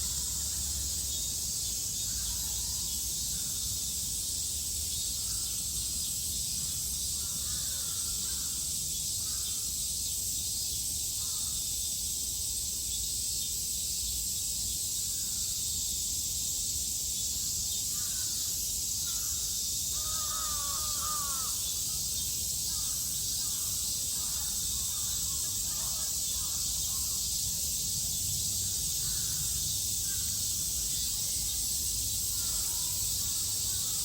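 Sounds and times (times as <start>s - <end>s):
cicadas buzzing: 0.0s - 34.0s
crows cawing: 20.0s - 21.6s.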